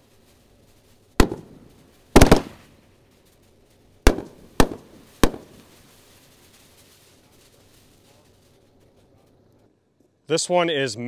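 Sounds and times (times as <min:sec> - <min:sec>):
firework bangs with echo: 0:01.1 - 0:03.2, 0:04.0 - 0:08.2.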